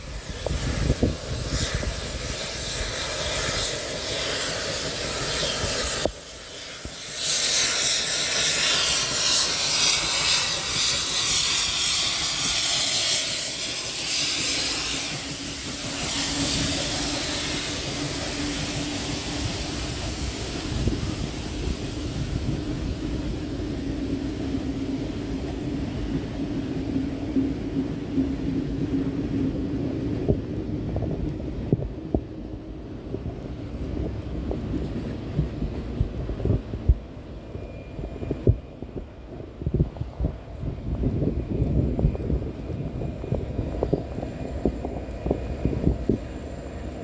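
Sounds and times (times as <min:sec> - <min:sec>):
loud hiss of escaping steam: 0:00.0 - 0:30.1
steam locomotive rumble: 0:00.0 - 0:47.0.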